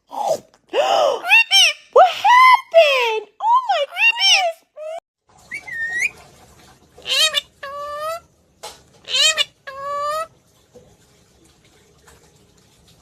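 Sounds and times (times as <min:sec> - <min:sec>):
parrot calling: 0:01.2 - 0:02.0, 0:05.5 - 0:06.2, 0:07.0 - 0:08.3, 0:09.0 - 0:10.3.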